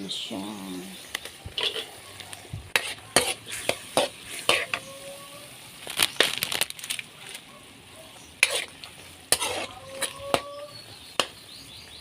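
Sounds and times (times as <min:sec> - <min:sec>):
faint sizzle: 0:00.0 - 0:12.0
utensil scraping a frying pan: 0:01.5 - 0:02.0, 0:02.7 - 0:05.0, 0:08.4 - 0:11.3.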